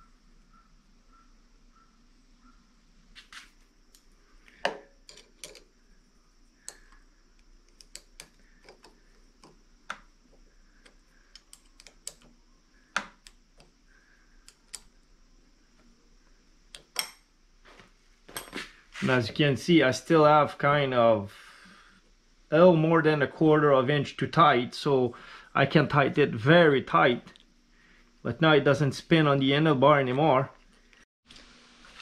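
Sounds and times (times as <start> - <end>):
small metal parts clicking: 3.9 - 5.7, 6.6 - 10.1, 10.7 - 12.4, 14.4 - 15.0.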